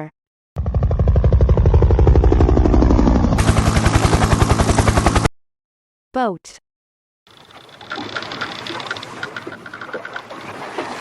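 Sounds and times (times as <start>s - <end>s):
helicopter rotor chopping: 0.6s - 5.3s, 7.3s - 10.2s.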